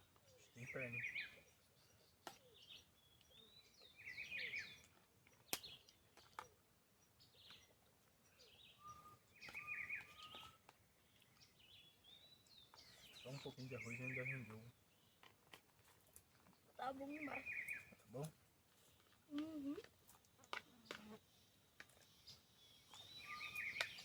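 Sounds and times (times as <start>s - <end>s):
birds chirping and calling: 0.0s - 15.3s, 16.8s - 24.0s
thin whistled notes: 8.8s - 10.6s.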